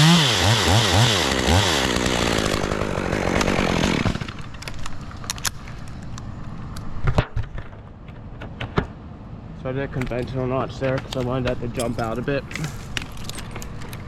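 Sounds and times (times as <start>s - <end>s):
chainsaw engine revving: 0.0s - 4.5s.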